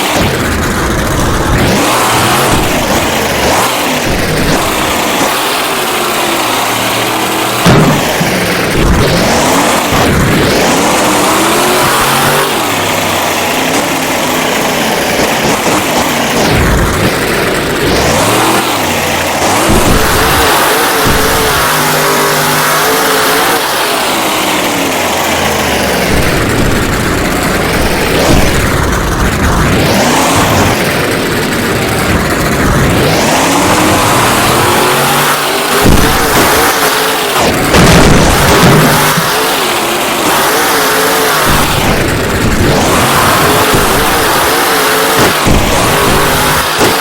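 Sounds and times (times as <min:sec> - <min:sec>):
sharp loud hits: 0:00.0 - 0:47.0
truck engine revving hard: 0:00.0 - 0:47.0.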